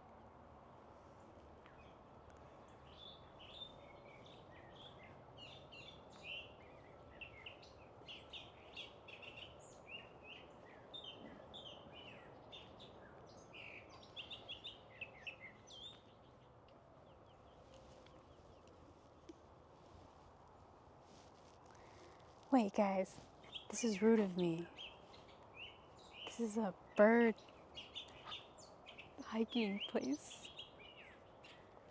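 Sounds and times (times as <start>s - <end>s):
faint steady background hiss: 0.0s - 31.9s
songbirds chirping and singing: 2.6s - 18.8s, 22.8s - 31.8s.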